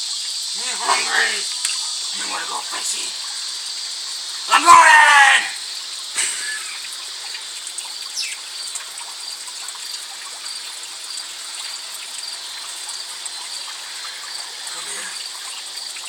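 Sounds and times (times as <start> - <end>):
water trickling: 5.6 - 16.0.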